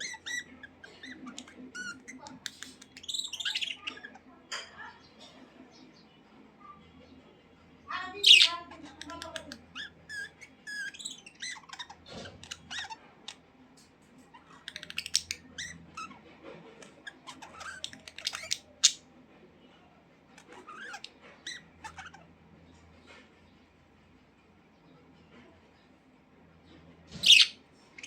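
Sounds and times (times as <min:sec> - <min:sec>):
budgerigars chattering: 0:00.0 - 0:04.2, 0:08.2 - 0:13.4, 0:14.4 - 0:16.2, 0:16.8 - 0:19.1, 0:27.1 - 0:27.6.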